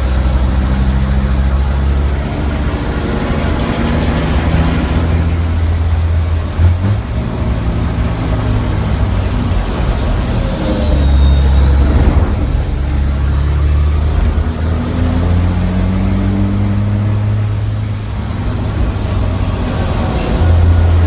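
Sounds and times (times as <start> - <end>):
truck diesel engine running hard: 0.0 - 21.0
thin high whine: 4.7 - 21.0.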